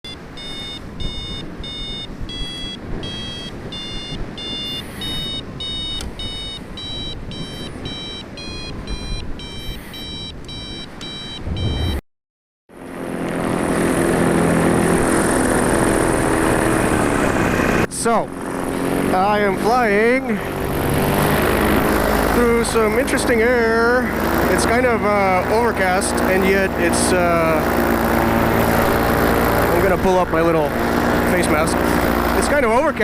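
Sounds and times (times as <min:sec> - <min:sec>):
variometer beeping: 0:00.0 - 0:12.0
rushing wind noise: 0:11.4 - 0:12.0
two-stroke paramotor engine: 0:12.8 - 0:33.0.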